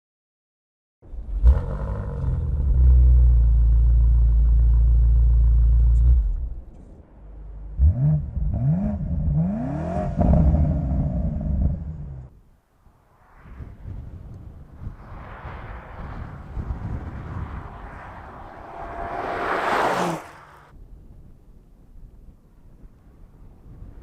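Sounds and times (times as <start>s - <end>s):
car engine idling and revving: 1.0s - 12.3s, 15.6s - 20.7s.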